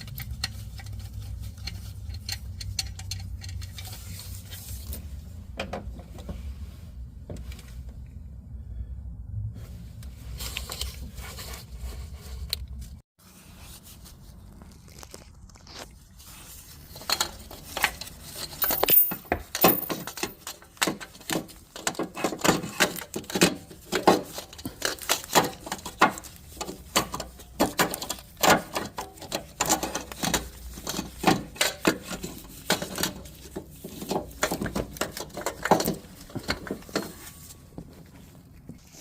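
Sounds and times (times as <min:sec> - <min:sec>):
metal tools clinking and knocking: 0:18.4 - 0:20.7.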